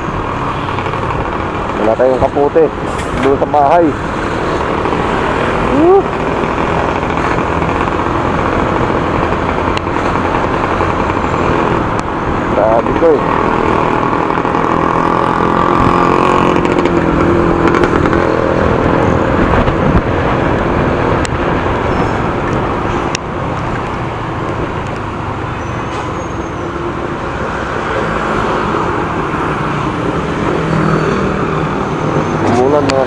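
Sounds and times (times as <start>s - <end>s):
road and traffic noise: 0.0s - 33.0s
motorcycle engine running: 4.6s - 20.1s.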